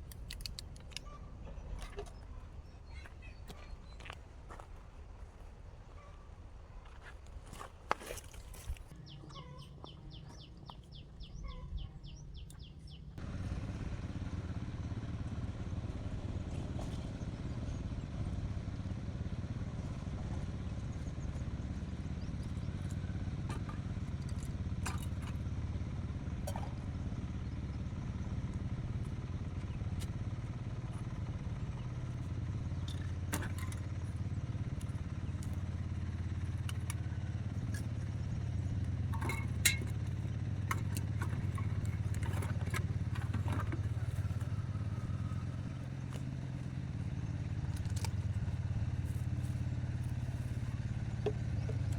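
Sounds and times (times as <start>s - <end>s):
light clicks and clatter: 0.0s - 2.2s, 28.5s - 51.9s
small engine running: 8.9s - 51.9s.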